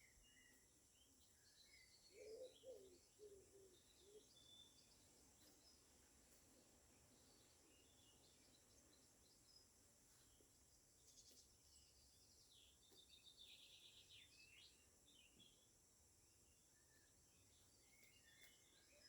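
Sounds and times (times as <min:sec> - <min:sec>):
birds chirping and trilling: 0:01.4 - 0:05.8.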